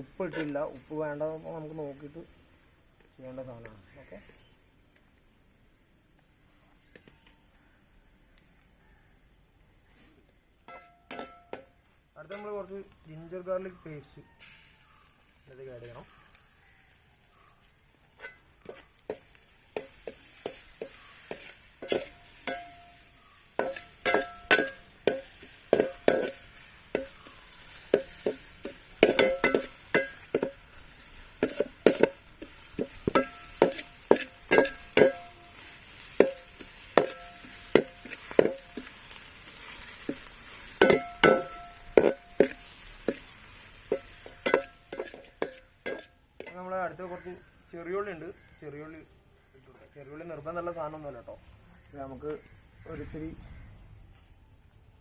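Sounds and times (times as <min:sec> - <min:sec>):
food sizzling in a pan: 0:00.0 - 0:04.9, 0:08.8 - 0:48.7
spoon knocking and scraping pan: 0:10.7 - 0:12.6, 0:18.2 - 0:46.7.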